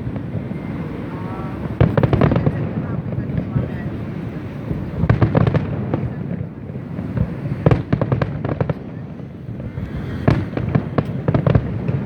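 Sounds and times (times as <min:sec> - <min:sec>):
low rumble of fireworks bursts: 0:00.0 - 0:12.0
fireworks crackling pops: 0:01.6 - 0:04.0, 0:04.7 - 0:12.0.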